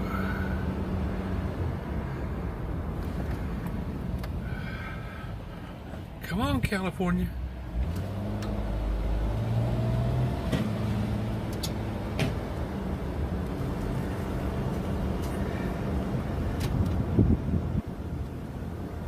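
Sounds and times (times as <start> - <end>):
car engine and road hum: 0.0 - 19.0.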